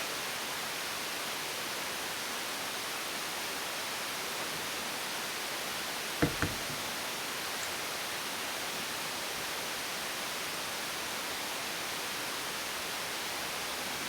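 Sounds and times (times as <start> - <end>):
short knocks: 6.2 - 6.9.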